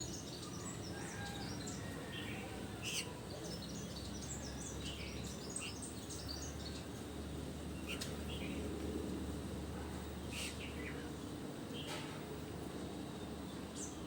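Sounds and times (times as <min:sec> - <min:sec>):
small birds chirping: 0:00.0 - 0:08.7, 0:10.2 - 0:12.0.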